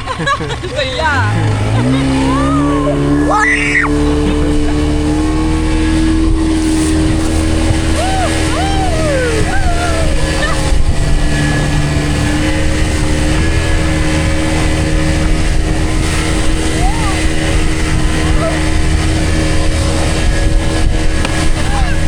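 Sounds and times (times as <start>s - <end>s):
motorboat engine running: 0.0s - 22.0s
wind and water rumble: 0.0s - 22.0s
short rising-and-falling cries: 1.3s - 4.3s, 7.6s - 13.0s.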